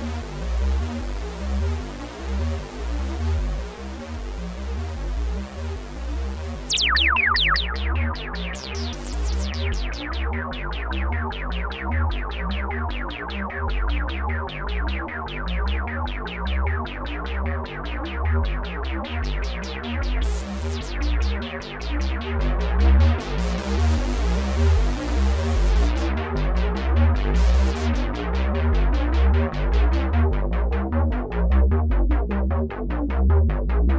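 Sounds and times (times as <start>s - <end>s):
synthesizer plucky notes: 0.0s - 10.7s, 20.2s - 26.1s
pulsing synth bass: 0.0s - 33.9s.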